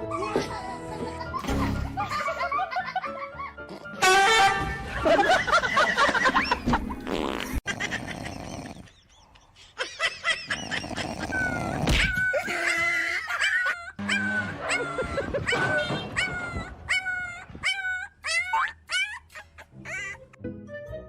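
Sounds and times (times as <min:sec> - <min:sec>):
dog whining and yipping: 0:11.4 - 0:20.3.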